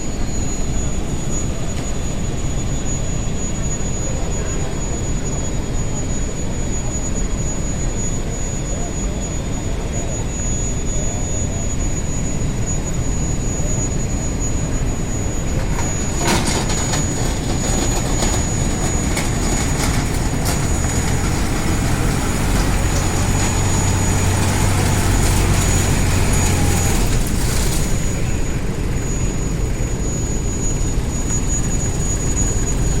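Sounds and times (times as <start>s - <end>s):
tractor diesel engine running: 14.3s - 33.0s
backhoe knocks and clanks: 15.8s - 29.1s.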